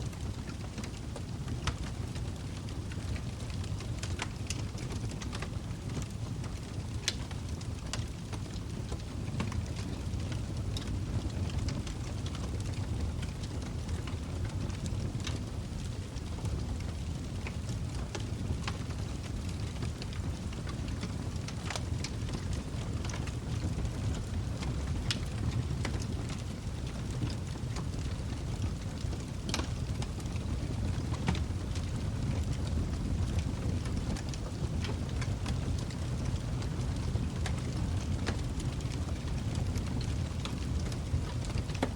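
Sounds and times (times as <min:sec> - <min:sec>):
log fire crackling and popping: 0:00.0 - 0:41.9.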